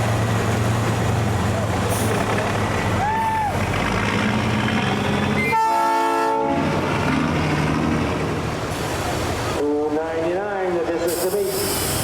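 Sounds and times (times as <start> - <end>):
air horn blast: 5.2 - 6.9.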